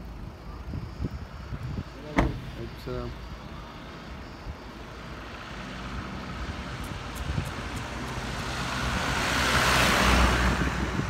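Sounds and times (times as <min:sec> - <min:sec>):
road vehicle approaching: 0:00.0 - 0:11.0.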